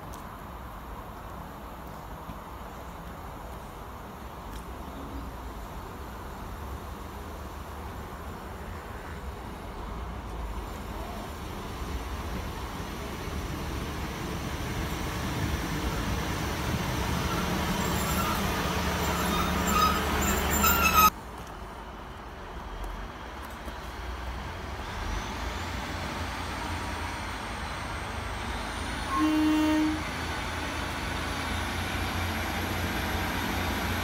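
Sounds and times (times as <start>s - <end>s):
train engine rumble: 0.0s - 34.0s
train wheel noise: 5.5s - 34.0s
high squeal: 17.2s - 21.1s.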